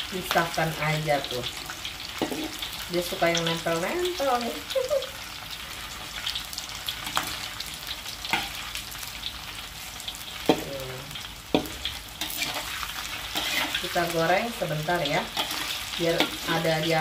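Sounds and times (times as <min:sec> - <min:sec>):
meat sizzling in oil: 0:00.0 - 0:17.0
spatula knocking and scraping wok: 0:02.2 - 0:02.7, 0:10.4 - 0:10.7, 0:11.5 - 0:14.3.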